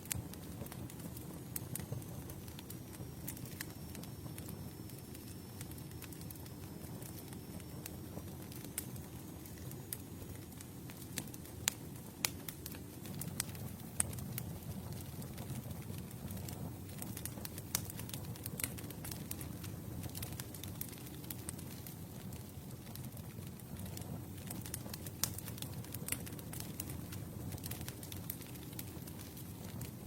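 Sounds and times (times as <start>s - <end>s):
campfire crackling: 0.0s - 30.0s.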